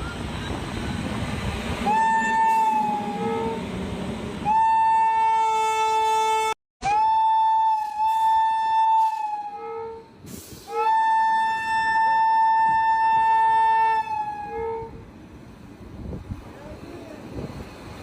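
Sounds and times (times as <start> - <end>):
train horn blasts: 1.8 - 3.7, 4.4 - 15.0.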